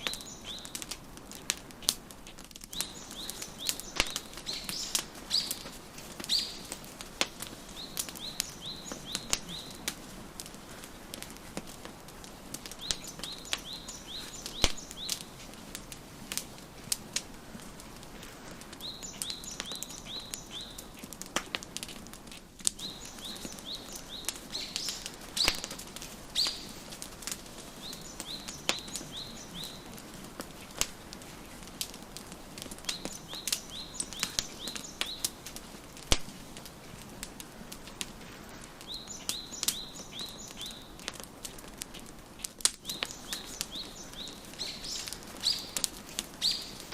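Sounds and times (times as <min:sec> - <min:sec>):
bird chirping: 0:00.0 - 0:00.8, 0:02.7 - 0:06.8, 0:07.7 - 0:09.9, 0:12.8 - 0:15.3, 0:18.8 - 0:20.9, 0:22.8 - 0:27.0, 0:27.7 - 0:30.0, 0:32.8 - 0:35.4, 0:38.8 - 0:41.1, 0:42.8 - 0:45.8, 0:46.4 - 0:46.9
wood fire crackling and popping: 0:00.0 - 0:46.9.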